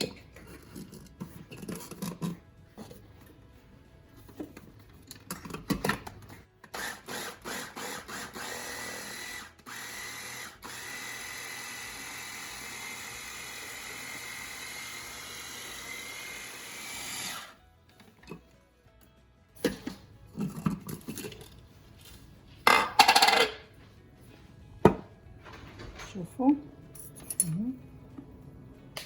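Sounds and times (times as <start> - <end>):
kitchen blender running: 6.7 - 17.6.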